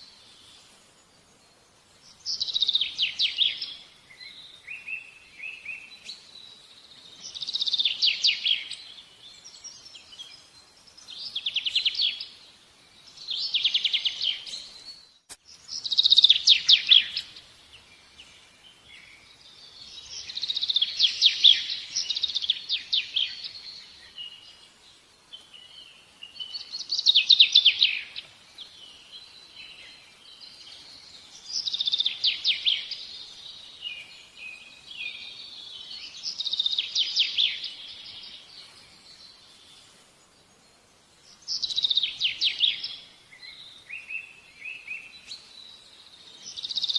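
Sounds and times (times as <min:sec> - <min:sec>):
songbird trilling: 0:31.4 - 0:33.1.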